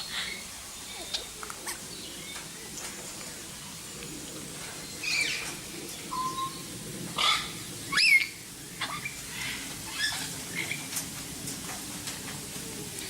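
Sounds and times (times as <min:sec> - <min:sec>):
birds chirping and whistling: 0:04.7 - 0:10.9.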